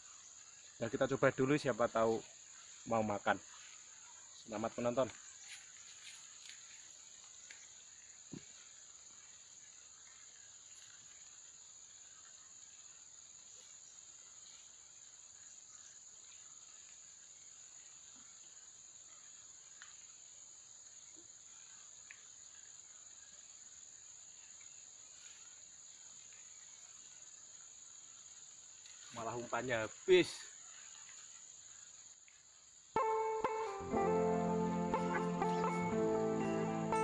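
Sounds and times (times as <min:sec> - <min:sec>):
faint ticks: 0:06.0 - 0:08.6, 0:19.7 - 0:20.0, 0:22.0 - 0:22.7.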